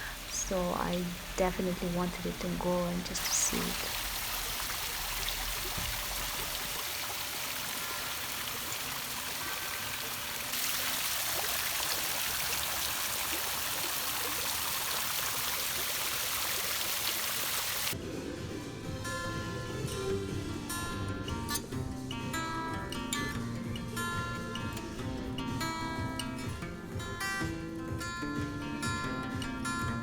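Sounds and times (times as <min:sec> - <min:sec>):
running water rushing: 0:00.0 - 0:18.0.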